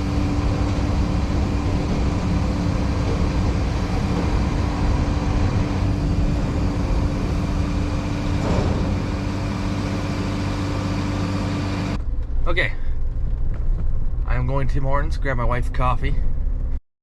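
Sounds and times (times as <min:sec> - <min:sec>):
farm machinery droning: 0:00.0 - 0:15.2.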